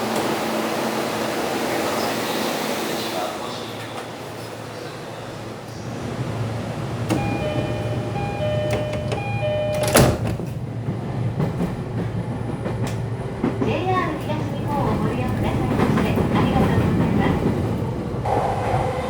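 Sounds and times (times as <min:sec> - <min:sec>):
train running hum: 0:00.0 - 0:19.0
sliding doors shutting: 0:05.3 - 0:10.6
train door chime: 0:07.1 - 0:10.6.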